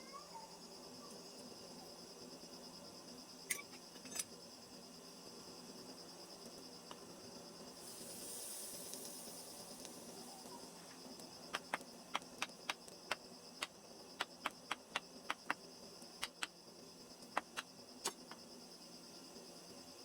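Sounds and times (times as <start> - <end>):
sharp clicks: 11.2 - 15.6, 16.2 - 16.6.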